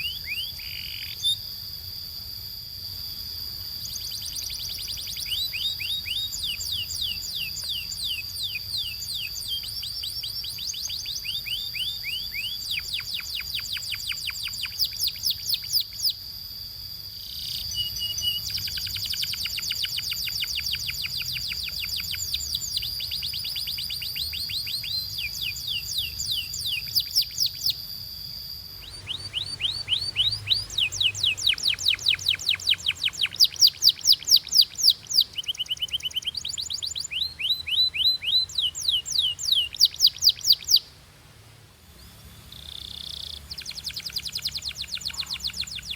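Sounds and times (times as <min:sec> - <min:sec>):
canaries singing trills: 0:00.0 - 0:01.4, 0:03.8 - 0:16.2, 0:17.2 - 0:40.9, 0:42.0 - 0:45.9
steady high whistle: 0:00.0 - 0:40.9.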